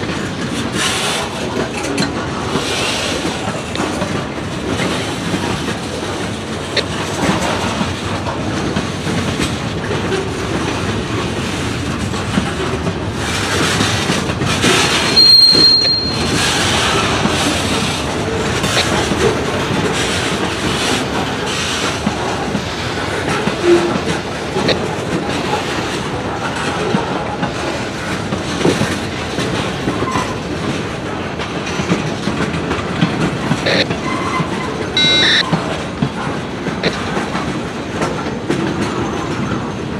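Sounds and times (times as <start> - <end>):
freight train cars rolling: 0.0 - 39.9
wheels clicking over rail joints: 0.0 - 39.9
high wheel squeal: 15.0 - 17.0, 34.0 - 35.6.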